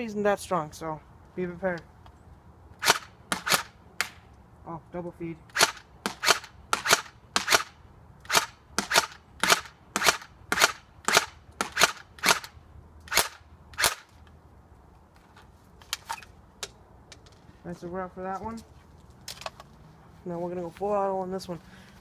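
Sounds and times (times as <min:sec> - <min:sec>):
airsoft gun firing single shots: 0:02.8 - 0:04.2, 0:05.5 - 0:12.5, 0:13.1 - 0:14.1.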